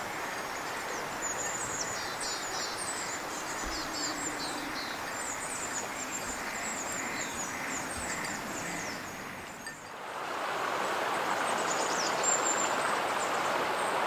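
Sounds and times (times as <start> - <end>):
small birds chirping: 0.0 - 9.9
river babbling: 0.0 - 14.0.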